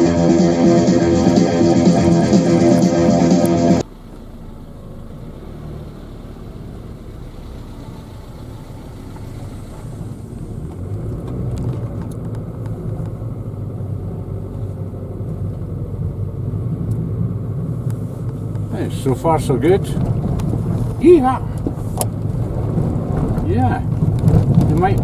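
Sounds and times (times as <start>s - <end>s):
car engine running: 0.0s - 25.0s
tyres rumbling on snow: 0.0s - 25.0s.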